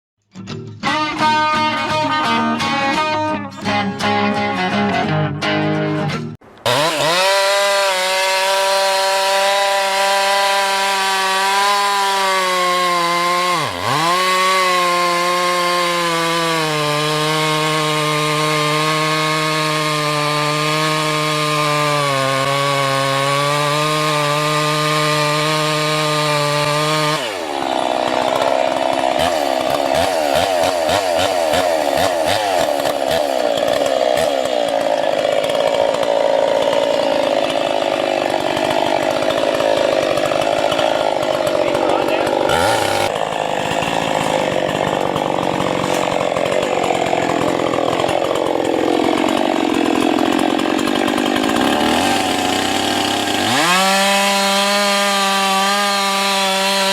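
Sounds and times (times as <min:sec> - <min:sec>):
power tool grinding into wood: 0:06.6 - 0:56.9
power tool running high pitch: 0:26.4 - 0:56.8.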